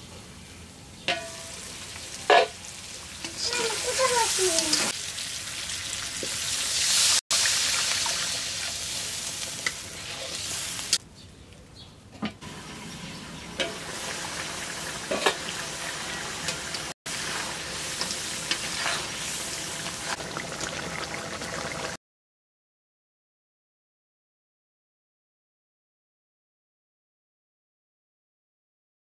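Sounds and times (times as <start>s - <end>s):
meat sizzling in a pot: 1.1s - 11.0s, 12.4s - 22.0s.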